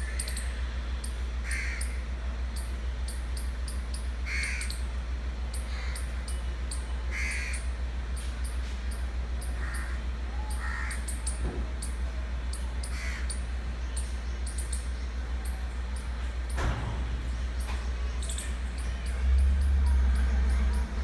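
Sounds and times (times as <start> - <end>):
steady low hum: 0.0 - 21.0
crows cawing: 1.4 - 2.1, 4.2 - 4.9, 5.6 - 6.2, 7.1 - 7.7, 9.5 - 11.3, 12.8 - 13.5.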